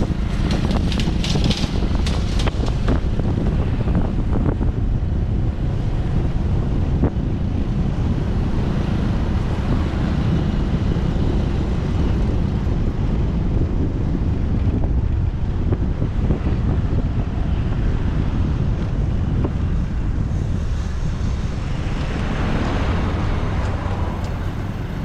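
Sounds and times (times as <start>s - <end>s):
road noise: 0.0s - 25.0s
wind buffeting microphone: 0.0s - 25.0s.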